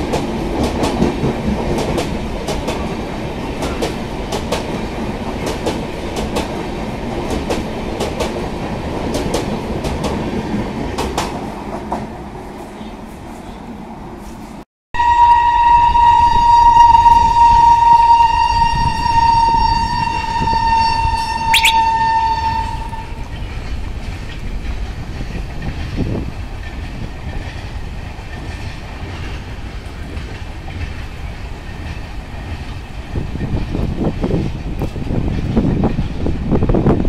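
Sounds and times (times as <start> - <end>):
train wheels rumbling on track: 0.0 - 13.5, 22.4 - 37.0
train horn blast: 15.0 - 23.2.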